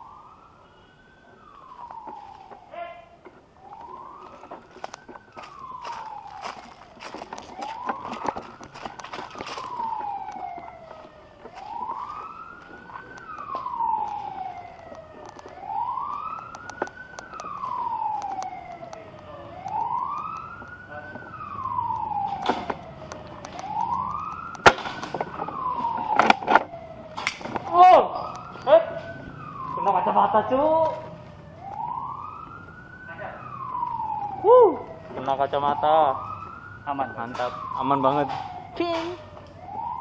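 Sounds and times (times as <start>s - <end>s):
siren wailing: 0.0s - 40.0s
sharp clicks and snaps: 12.9s - 25.2s, 26.1s - 28.7s.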